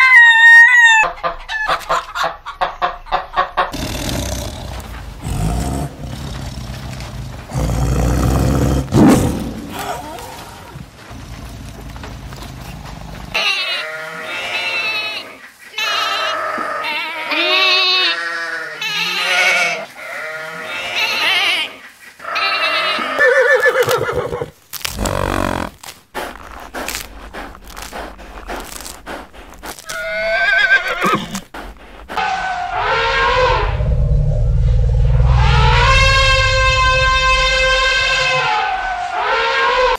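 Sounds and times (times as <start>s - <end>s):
mixed animal noises: 0.0s - 39.9s
sheep bleating: 13.3s - 23.2s
rising animal call: 29.9s - 39.2s.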